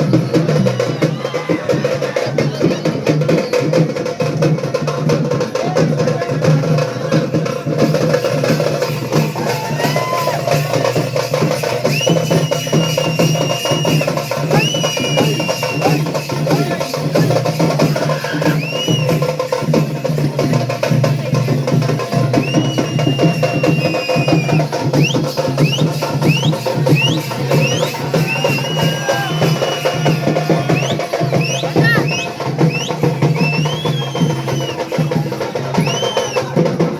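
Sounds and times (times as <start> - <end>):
fast festival drumming: 0.0 - 36.9
high held whistling tones: 8.7 - 19.5, 22.3 - 36.7.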